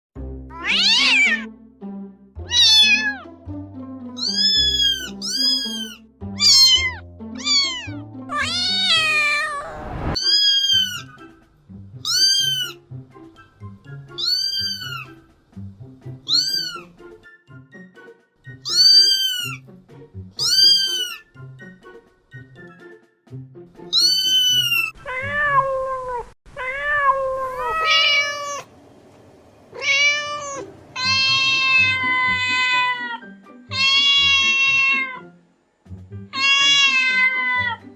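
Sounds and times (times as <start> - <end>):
background music low notes: 0.2 - 26.7, 27.6 - 37.9
cats and kittens meowing: 0.5 - 1.5, 2.4 - 3.3, 4.2 - 11.2, 12.0 - 12.8, 14.1 - 15.2, 16.3 - 17.0, 18.6 - 19.6, 20.4 - 21.3, 23.9 - 28.7, 29.7 - 35.3, 36.3 - 37.9.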